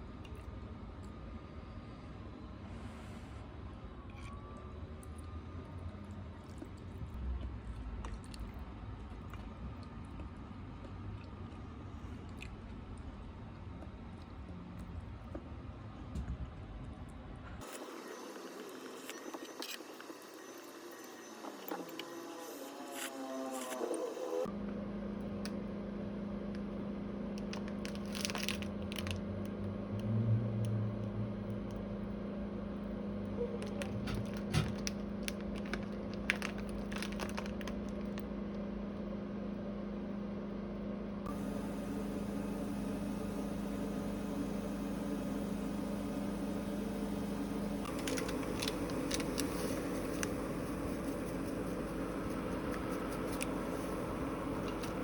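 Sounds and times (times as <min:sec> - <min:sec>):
electrical hum: 0:17.5 - 0:55.0.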